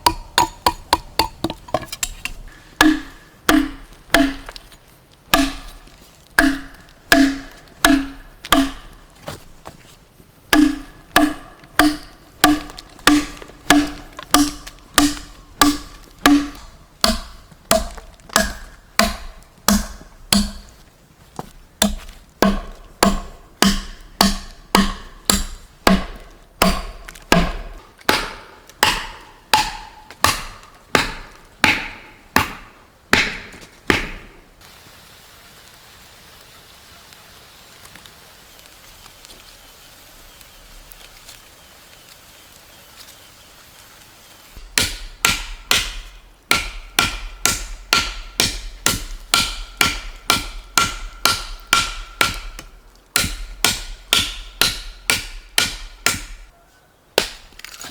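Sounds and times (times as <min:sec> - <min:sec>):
chopping wood: 0:00.0 - 0:04.7, 0:05.3 - 0:09.4, 0:10.5 - 0:20.8, 0:21.8 - 0:34.4, 0:44.6 - 0:56.5, 0:57.2 - 0:57.9.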